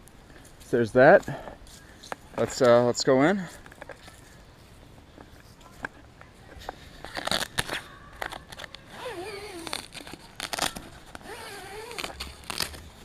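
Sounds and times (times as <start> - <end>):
tent fabric rustling: 8.9 - 13.0.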